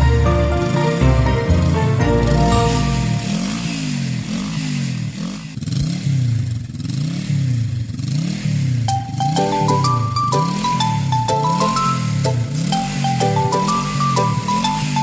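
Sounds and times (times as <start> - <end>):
music: 0.0 - 4.0, 8.9 - 15.0
cartoon police siren: 2.3 - 4.1, 8.9 - 15.0.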